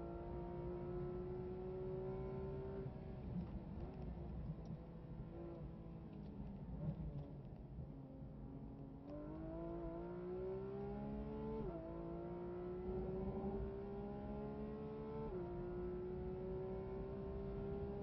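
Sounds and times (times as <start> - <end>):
car engine accelerating hard: 9.2 - 18.0.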